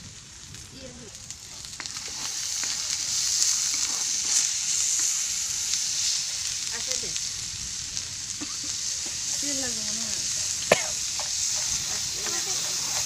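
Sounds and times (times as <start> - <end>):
curry sizzling in a wok: 0.0 - 13.0
steel ladle scraping and clicking: 10.7 - 13.0.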